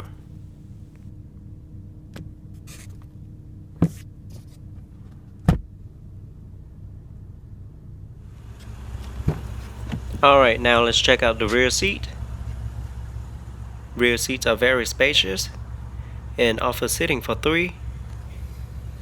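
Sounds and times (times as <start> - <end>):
car engine idling: 0.0 - 2.0, 6.0 - 19.0.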